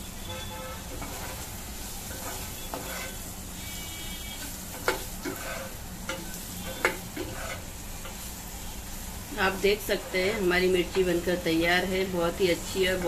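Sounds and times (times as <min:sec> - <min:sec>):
chillies sizzling in hot oil: 0:00.0 - 0:13.0
spoon scraping through chillies: 0:02.1 - 0:03.2, 0:04.9 - 0:05.8, 0:06.7 - 0:07.7.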